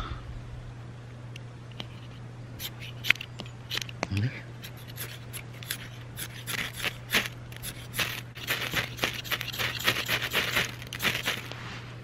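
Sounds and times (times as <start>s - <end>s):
ferro rod rasping scrapes: 1.8s - 3.8s, 4.6s - 11.6s.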